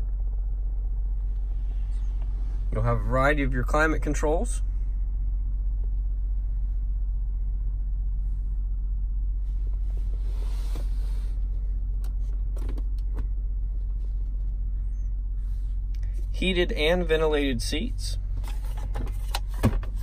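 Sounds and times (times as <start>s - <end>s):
car engine idling in cabin: 0.0s - 20.0s
brief rubbing noise: 9.7s - 11.4s.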